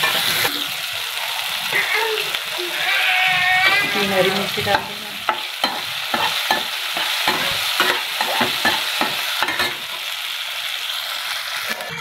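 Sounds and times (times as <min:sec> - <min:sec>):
vegetables sizzling in oil: 0:00.0 - 0:12.0
spatula scraping and knocking pan: 0:03.6 - 0:09.9.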